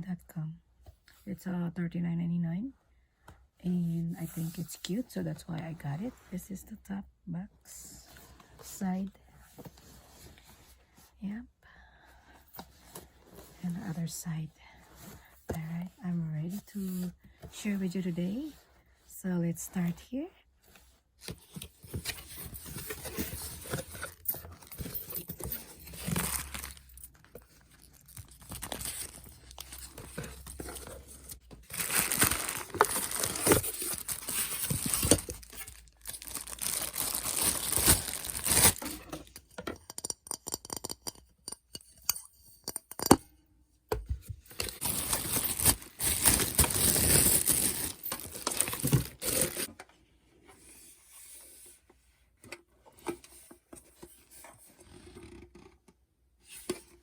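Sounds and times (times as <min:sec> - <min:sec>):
packaging tearing and crinkling: 0:31.7 - 0:38.8, 0:44.8 - 0:49.7.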